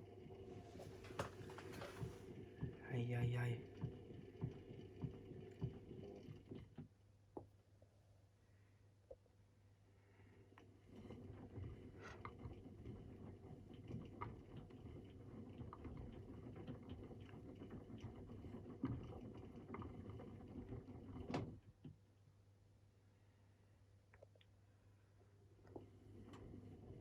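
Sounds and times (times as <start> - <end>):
laundry tumbling in washing machine: 0.0 - 6.9, 10.8 - 21.9, 25.7 - 27.0
washing machine click: 0.6 - 2.3.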